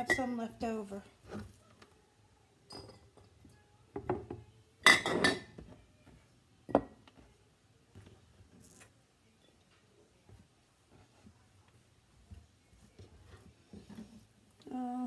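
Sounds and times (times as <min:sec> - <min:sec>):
glass jars clinking together: 0:02.7 - 0:03.3, 0:04.1 - 0:05.6.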